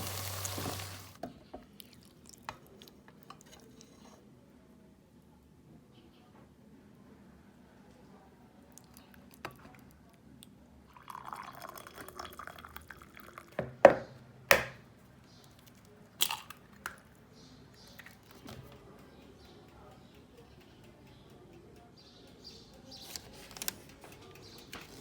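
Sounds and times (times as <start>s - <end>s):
liquid pouring: 10.9s - 13.7s.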